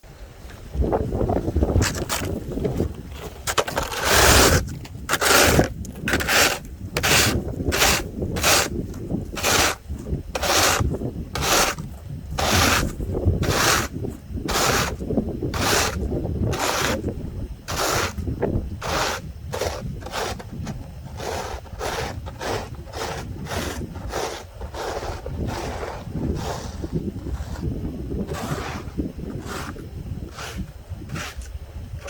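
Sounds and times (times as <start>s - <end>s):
footsteps crunching: 0.4s - 15.0s.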